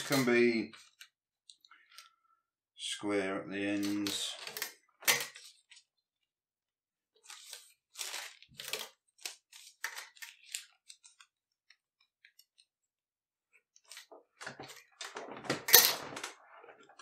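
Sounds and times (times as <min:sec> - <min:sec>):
marker scratching and paper rustling: 0:07.2 - 0:12.7.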